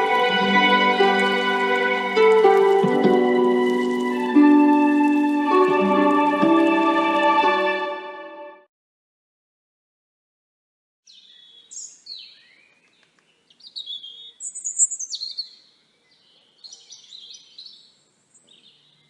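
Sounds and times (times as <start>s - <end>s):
songbird warbling: 11.1s - 19.0s.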